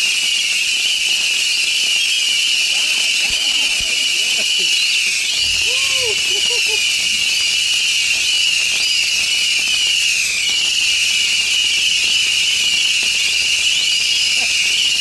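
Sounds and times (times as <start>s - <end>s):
firework crackles: 0.0s - 15.0s
firework hissing: 0.0s - 15.0s
rising whistles: 0.0s - 15.0s
high-pitched buzz: 5.3s - 8.4s.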